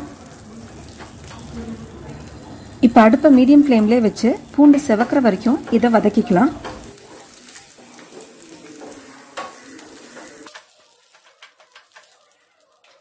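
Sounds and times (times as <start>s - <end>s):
spices sizzling in oil: 0.0s - 13.0s
wooden spatula stirring: 4.7s - 13.0s.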